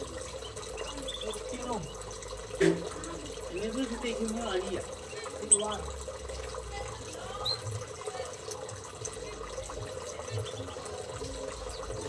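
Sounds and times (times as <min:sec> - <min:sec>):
water running: 0:00.0 - 0:12.0
high bird chirps: 0:00.3 - 0:02.1, 0:05.0 - 0:05.9, 0:07.4 - 0:07.7.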